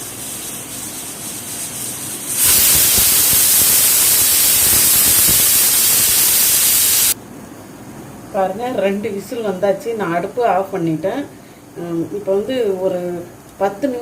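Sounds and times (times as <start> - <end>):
pressure cooker whistling steam: 2.4 - 7.2.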